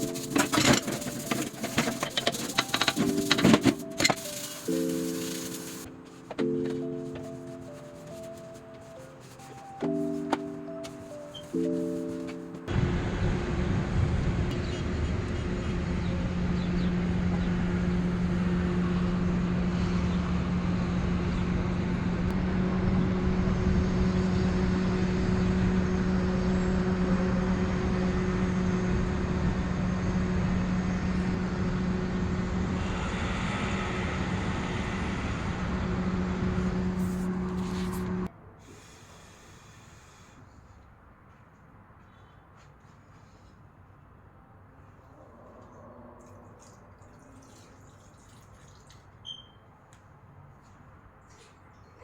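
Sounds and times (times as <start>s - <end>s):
rushing airy noise: 0.0s - 12.2s, 32.2s - 40.3s
electric motor hum: 12.7s - 38.3s.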